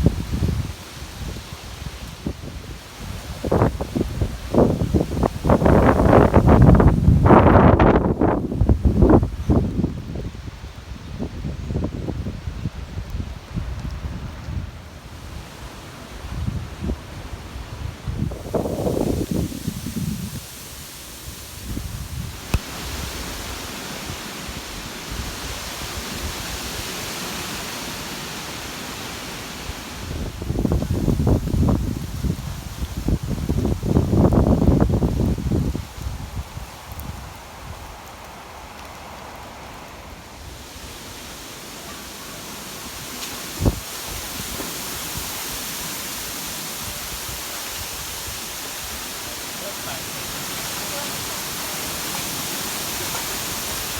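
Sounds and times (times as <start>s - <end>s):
wind buffeting microphone: 0.0s - 27.0s, 29.6s - 38.9s, 42.7s - 45.6s
rushing water hiss: 0.0s - 53.9s.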